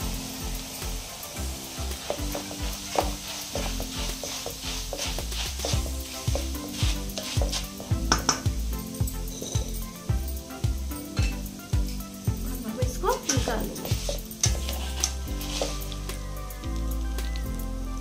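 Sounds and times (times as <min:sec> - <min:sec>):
rice sizzling in hot oil: 0:00.0 - 0:18.0
spoon scraping pan: 0:02.0 - 0:08.5, 0:09.3 - 0:09.8, 0:13.1 - 0:16.1.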